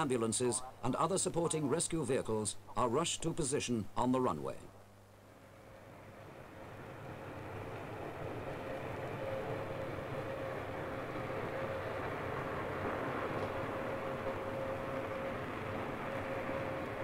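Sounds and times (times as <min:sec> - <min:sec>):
engine with steady whine: 0:04.8 - 0:17.0.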